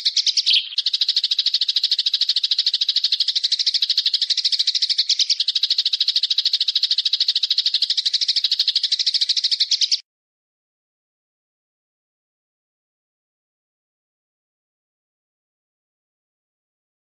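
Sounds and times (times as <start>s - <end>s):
songbird chattering trill: 0.0s - 10.0s.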